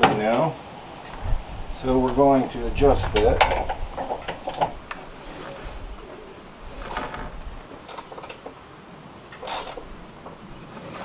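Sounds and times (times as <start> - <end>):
tool clicks and clunks: 0.0 - 0.4, 9.3 - 10.4.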